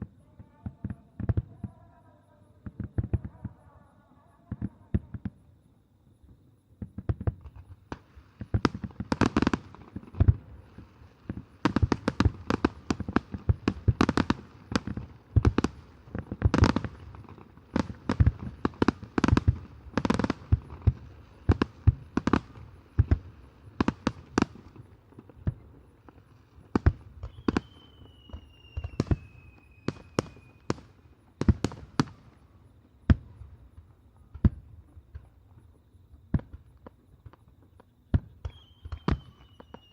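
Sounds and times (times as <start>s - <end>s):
fireworks bangs: 6.8s - 39.9s
high falling whistle: 27.2s - 30.7s, 38.4s - 39.9s.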